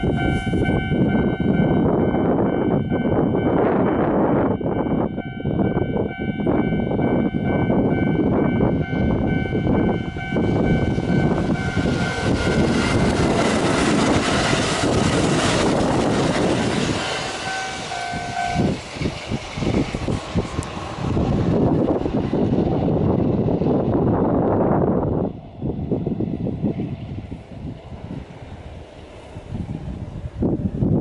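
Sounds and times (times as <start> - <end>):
crossing warning bell ringing: 0.0 - 15.3, 16.7 - 18.9
electric train passing: 0.0 - 31.0.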